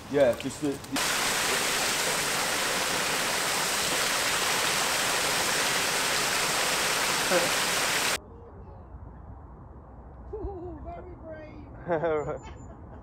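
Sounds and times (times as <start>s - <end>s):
rushing water: 0.9s - 8.2s.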